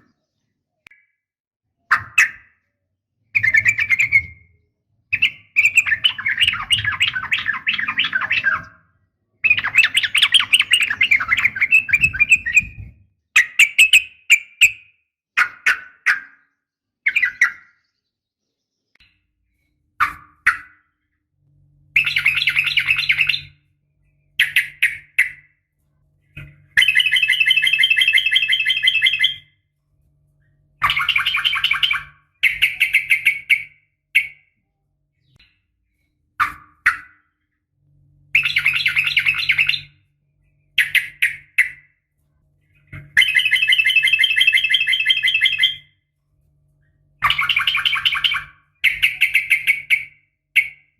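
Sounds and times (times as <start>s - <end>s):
bird chirps: 0.0s - 46.2s, 46.8s - 50.9s
bird rattling trills: 26.4s - 29.5s, 42.8s - 45.8s, 47.2s - 50.8s.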